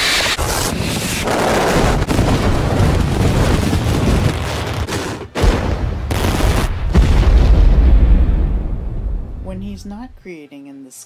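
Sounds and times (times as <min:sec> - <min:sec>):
fireworks blasts and cracks: 0:00.0 - 0:09.1
low rumble: 0:06.7 - 0:10.2.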